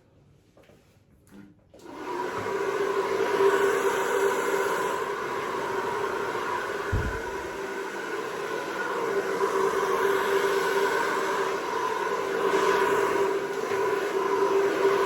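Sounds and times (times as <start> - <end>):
hair dryer running: 1.8 - 15.0
low thud: 6.9 - 7.6.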